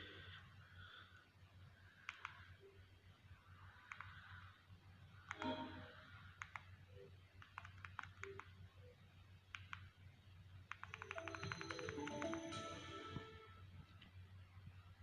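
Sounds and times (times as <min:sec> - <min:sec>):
faint clicks: 0:02.0 - 0:02.6, 0:03.6 - 0:04.5, 0:05.2 - 0:05.6, 0:06.3 - 0:08.6, 0:09.5 - 0:10.0, 0:10.7 - 0:12.5
musical tones: 0:11.1 - 0:13.7.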